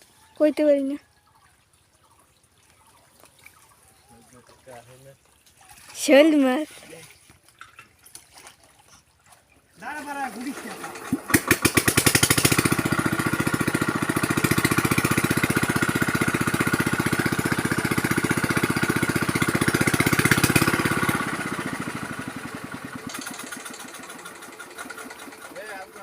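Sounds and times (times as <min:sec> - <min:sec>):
small engine chugging: 0:10.0 - 0:26.0.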